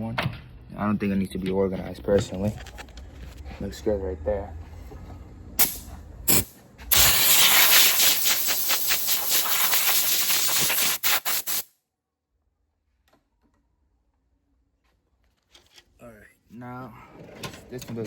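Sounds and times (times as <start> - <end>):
compressed air blow gun hissing: 5.6 - 11.6.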